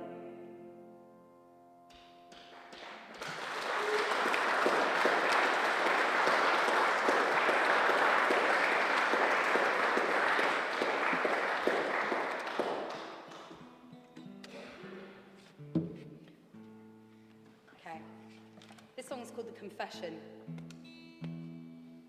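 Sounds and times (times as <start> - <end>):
audience applauding: 2.2 - 13.7.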